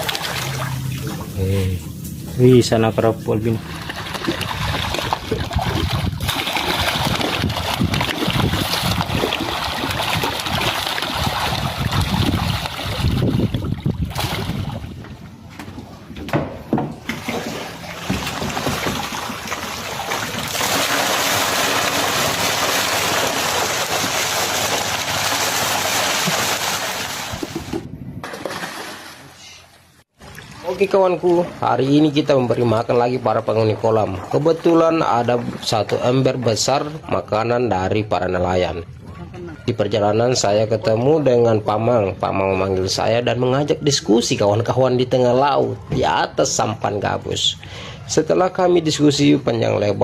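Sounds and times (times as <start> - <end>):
fish splashing at water surface: 0.0 - 1.4, 3.6 - 14.9, 17.1 - 30.7.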